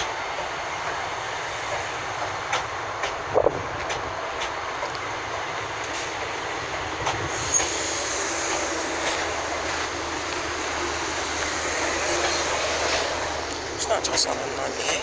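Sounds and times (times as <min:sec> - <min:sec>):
train running noise: 0:00.0 - 0:15.0
high wheel squeal: 0:07.2 - 0:15.0.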